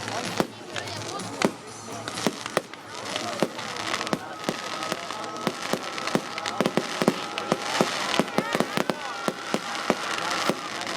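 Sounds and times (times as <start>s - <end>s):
fireworks bangs and crackling: 0.0s - 10.9s.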